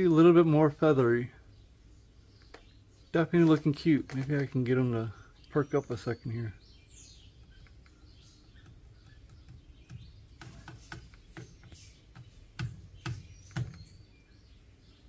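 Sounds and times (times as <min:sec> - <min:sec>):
faint high bird chirps: 0:04.9 - 0:15.0.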